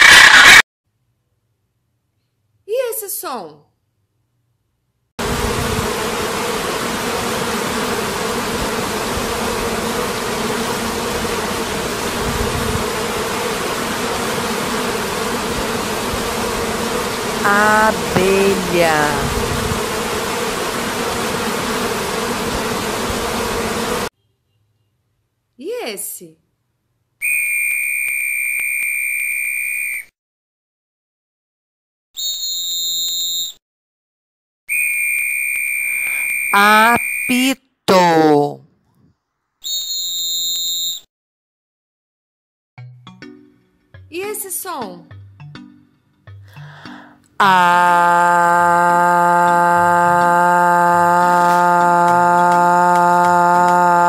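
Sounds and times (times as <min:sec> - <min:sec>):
bees buzzing: 0:05.2 - 0:24.1, 0:36.1 - 0:38.6, 0:47.4 - 0:54.0
whistle blasts: 0:27.2 - 0:30.0, 0:39.6 - 0:41.0.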